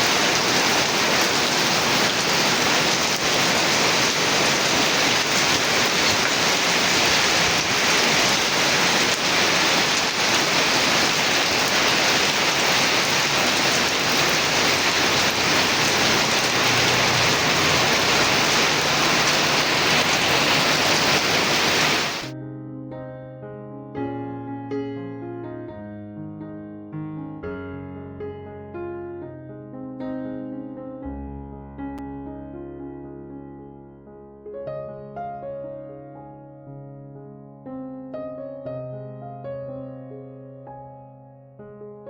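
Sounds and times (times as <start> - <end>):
heavy rain falling: 0.0 - 22.3
soft piano music: 0.0 - 42.0.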